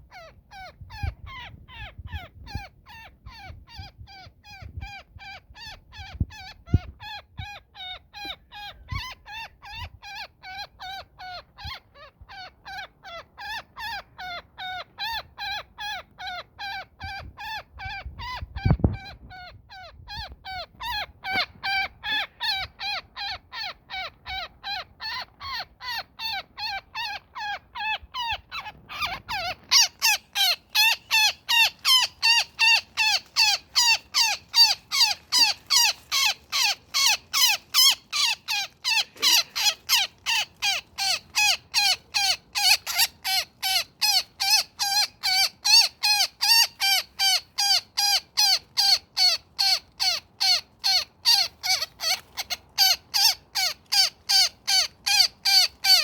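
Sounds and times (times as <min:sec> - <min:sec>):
woodpecker harsh distress calls: 0:19.0 - 0:56.0.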